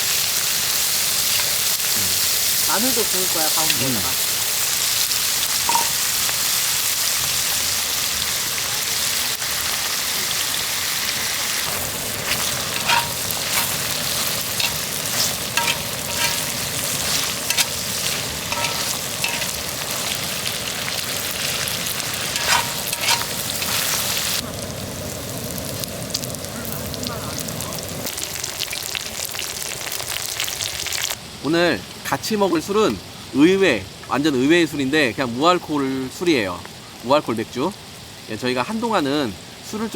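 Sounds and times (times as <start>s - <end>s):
meat sizzling in a pan: 0.0s - 31.7s.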